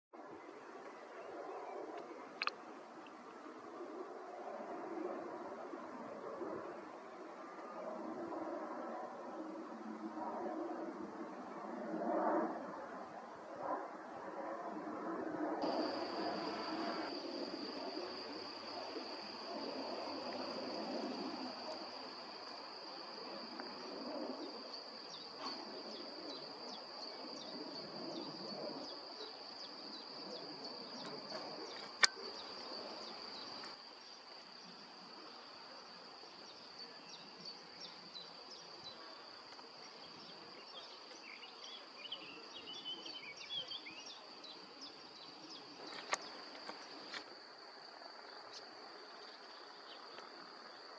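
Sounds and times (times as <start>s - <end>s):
distant jet airliner rumble: 1.1s - 33.9s
crickets trilling: 15.6s - 50.9s.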